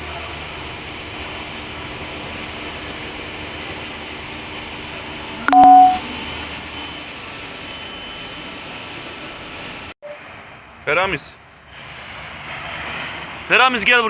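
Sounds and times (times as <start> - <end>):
city street rumble and hiss: 0.0 - 5.4, 6.0 - 14.0
loud two-tone beep: 5.5 - 6.0.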